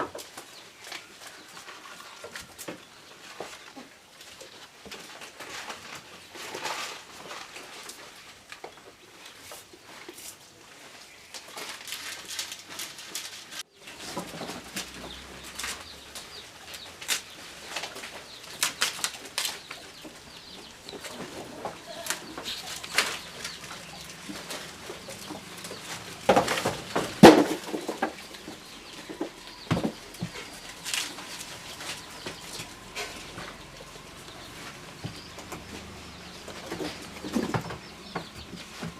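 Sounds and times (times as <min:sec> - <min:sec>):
leaves rustling and crackling: 0:00.0 - 0:38.9
branches snapping: 0:14.6 - 0:33.4.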